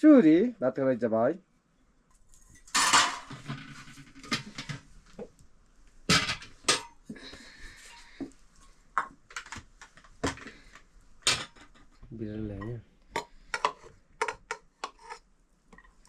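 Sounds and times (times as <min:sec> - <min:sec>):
dishes and utensils clattering: 0:02.4 - 0:04.9, 0:06.1 - 0:07.0, 0:11.2 - 0:12.0, 0:12.6 - 0:15.2.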